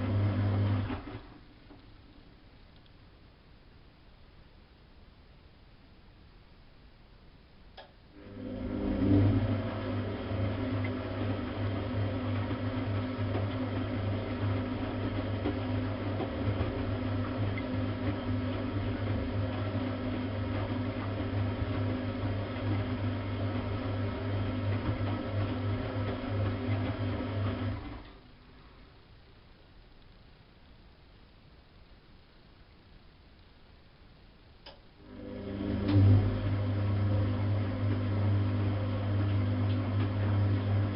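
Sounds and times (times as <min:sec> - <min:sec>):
washing machine motor hum: 0:00.0 - 0:01.7, 0:07.8 - 0:28.7, 0:34.6 - 0:40.9.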